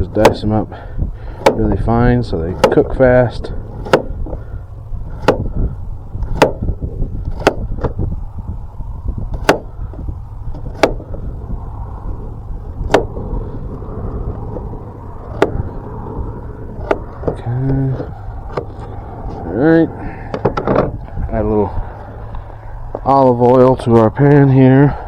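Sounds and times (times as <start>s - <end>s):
steady low rumble: 0.0s - 25.0s
knife chopping: 1.4s - 1.7s, 2.5s - 2.9s, 3.8s - 4.2s, 5.2s - 5.5s, 6.3s - 6.7s, 7.3s - 7.7s, 9.4s - 9.7s, 10.7s - 11.0s, 15.3s - 15.6s.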